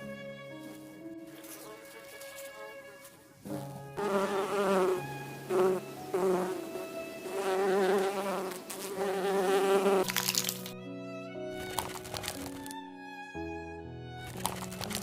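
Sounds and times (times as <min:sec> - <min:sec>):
flying insect buzzing: 0:00.7 - 0:10.6.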